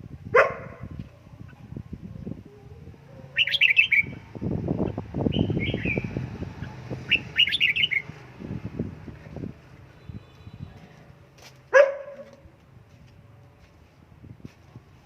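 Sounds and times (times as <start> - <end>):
bird warbling: 3.2 - 4.2, 7.1 - 8.1.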